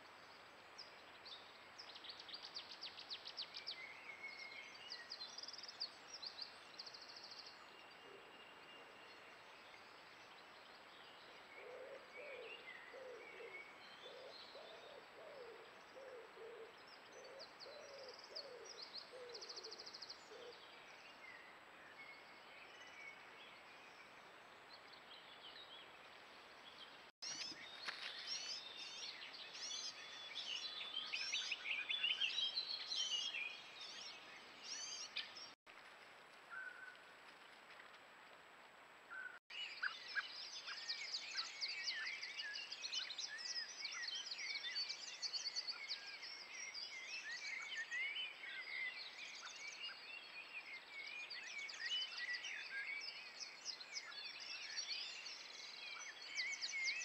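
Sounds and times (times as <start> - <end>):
birds chirping and trilling: 24.8 - 35.6, 39.1 - 57.0.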